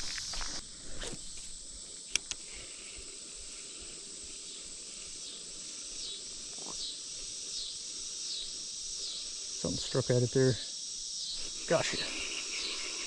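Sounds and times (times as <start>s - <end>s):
insects chirring: 0.0s - 13.0s
sharp clicks: 2.1s - 2.4s.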